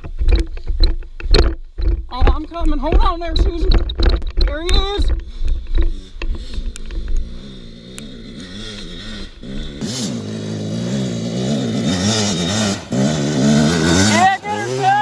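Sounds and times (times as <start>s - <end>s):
dirt bike engine revving: 4.6s - 15.0s.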